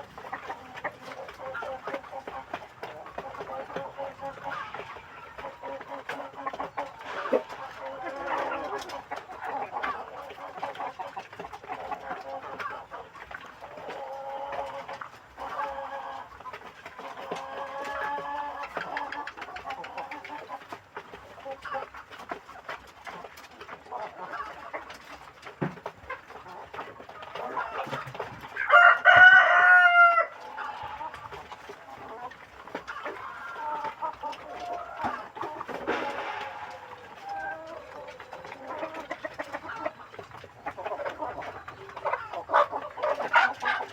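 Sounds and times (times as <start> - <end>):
chickens clucking: 0.0 - 43.9
rooster crowing: 28.6 - 30.3.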